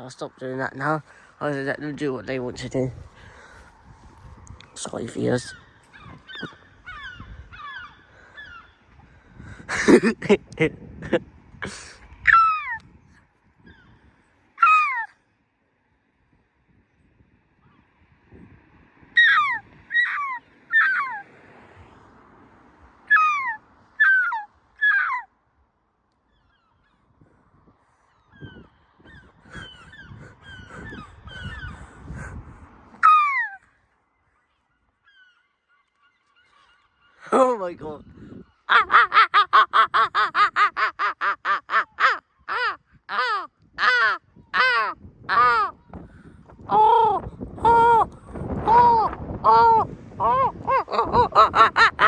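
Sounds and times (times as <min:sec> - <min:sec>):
seagulls calling: 0:04.7 - 0:10.2, 0:12.2 - 0:12.8, 0:13.6 - 0:15.1, 0:19.2 - 0:21.4, 0:23.0 - 0:25.3, 0:26.3 - 0:27.2, 0:27.9 - 0:46.0, 0:46.7 - 0:52.0.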